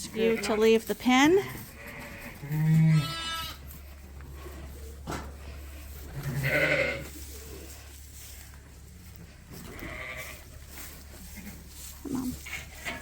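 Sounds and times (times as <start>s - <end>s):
sheep bleating: 1.8s - 3.6s, 6.2s - 7.1s.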